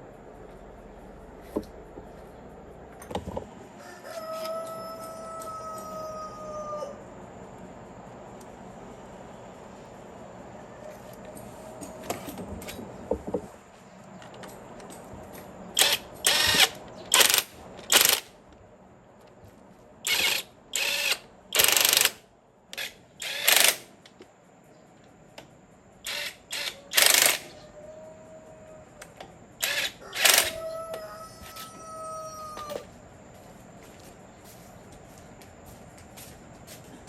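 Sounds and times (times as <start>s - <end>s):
mechanical tool bursts: 15.8s - 18.3s, 20.0s - 22.2s, 22.8s - 24.0s, 26.0s - 27.5s, 29.6s - 30.6s.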